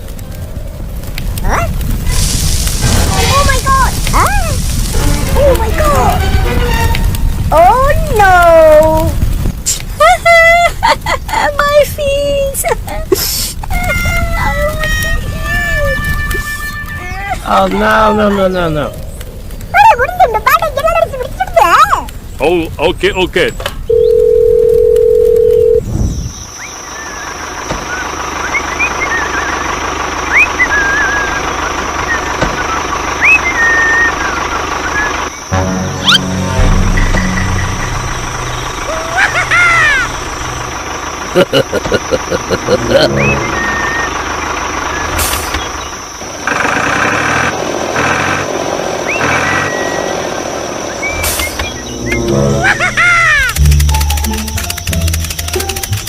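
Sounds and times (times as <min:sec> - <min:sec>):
truck engine running: 0:00.0 - 0:22.9, 0:26.6 - 0:56.0
loud horn blasts: 0:05.9 - 0:07.4, 0:35.5 - 0:38.8, 0:42.7 - 0:44.2, 0:51.9 - 0:52.9
steady electronic dial tone: 0:23.9 - 0:25.8
short high chirps: 0:35.5 - 0:38.7.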